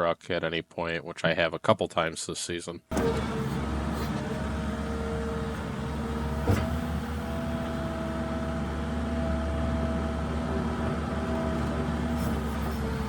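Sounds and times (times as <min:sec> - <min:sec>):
diesel engine running: 0:02.9 - 0:13.0.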